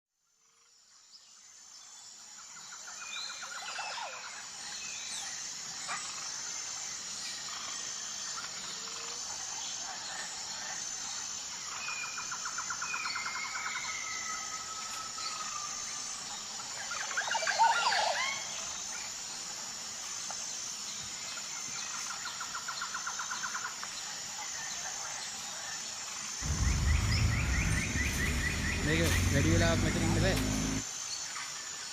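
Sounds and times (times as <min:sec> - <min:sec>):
birds chirping: 0:26.4 - 0:30.8
high-pitched pulsing drone: 0:26.4 - 0:30.8.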